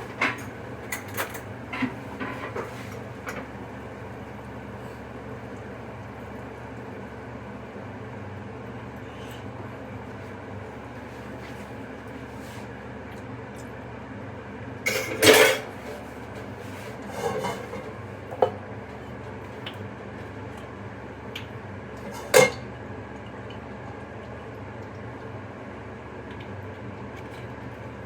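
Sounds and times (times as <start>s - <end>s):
dishes and utensils clattering: 0.0s - 2.9s, 14.9s - 16.0s, 17.0s - 18.6s.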